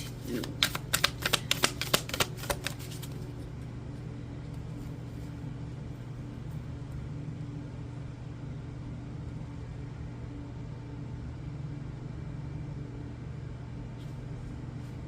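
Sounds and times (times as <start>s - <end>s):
cards being shuffled: 0.0s - 3.6s
steady low hum: 0.0s - 15.0s.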